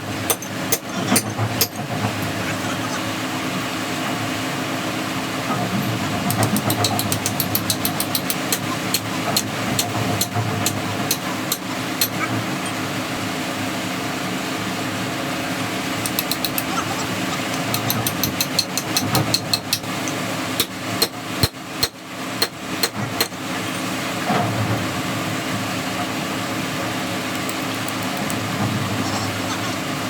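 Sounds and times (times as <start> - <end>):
steady mechanical hum: 0.0 - 30.0
hammer striking metal: 0.3 - 1.8, 6.3 - 12.2, 16.0 - 16.8, 17.5 - 23.8.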